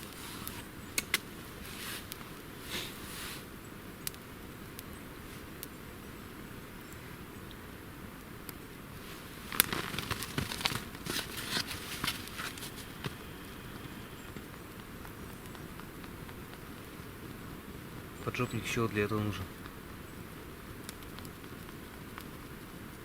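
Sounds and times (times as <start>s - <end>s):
twigs snapping and crackling: 0.0s - 2.4s, 9.3s - 17.4s, 18.1s - 22.8s.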